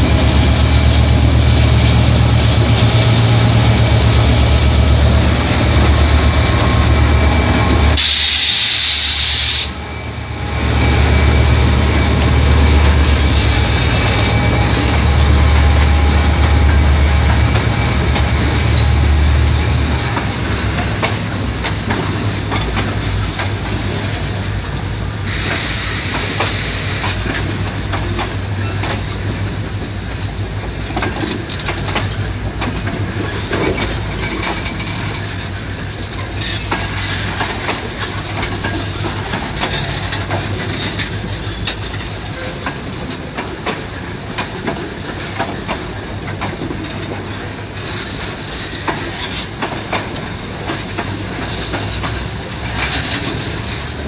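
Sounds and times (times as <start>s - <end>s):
diesel locomotive drone: 0.0s - 54.0s
freight train wagons rumbling: 0.0s - 54.0s
hiss: 8.0s - 9.8s, 25.0s - 34.5s
wheels clicking over rail joints: 20.1s - 54.0s.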